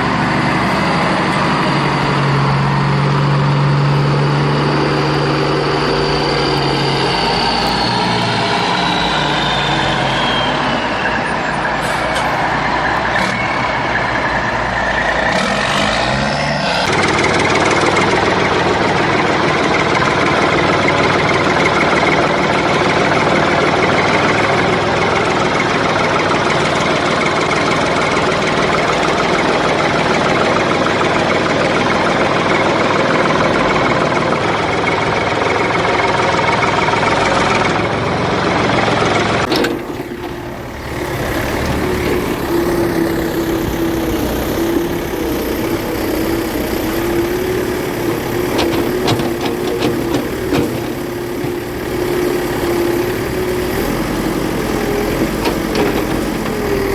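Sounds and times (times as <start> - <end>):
toy vehicle engine drone: 0.0 - 56.9
clicks: 39.4 - 42.5.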